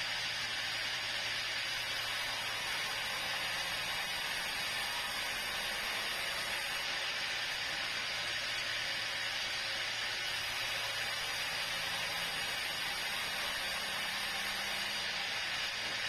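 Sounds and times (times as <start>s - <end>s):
sawmill saw hissing: 0.0s - 16.0s.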